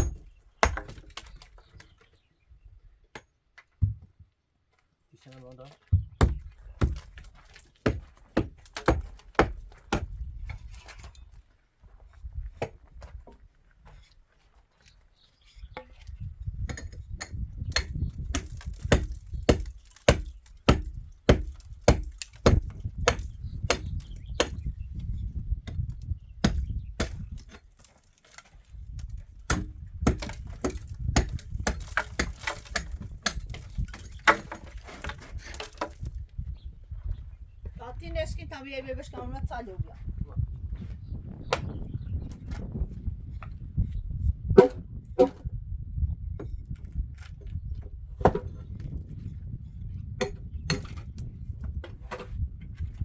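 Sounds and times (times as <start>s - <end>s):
hammer striking wood: 7.8s - 10.2s, 16.7s - 24.6s, 29.5s - 33.5s, 44.6s - 45.4s.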